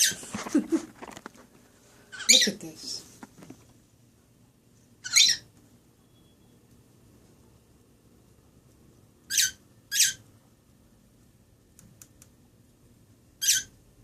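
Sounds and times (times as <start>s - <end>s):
bird squawking: 5.0s - 5.5s, 9.3s - 10.2s, 13.4s - 13.8s.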